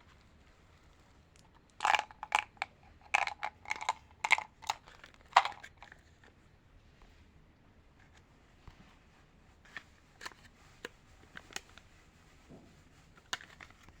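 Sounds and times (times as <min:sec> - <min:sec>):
candy packaging crinkling: 0:01.7 - 0:06.1.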